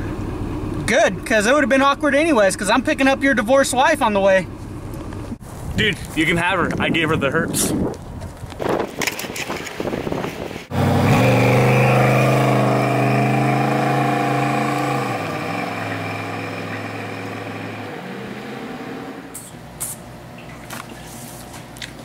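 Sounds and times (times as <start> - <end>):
vehicle engine passing: 10.7 - 19.5.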